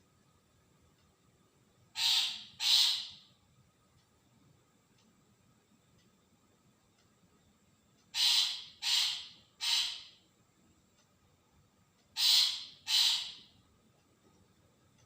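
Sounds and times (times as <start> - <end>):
shrike harsh scratchy calls: 2.0 - 3.1, 8.2 - 10.2, 12.2 - 13.4.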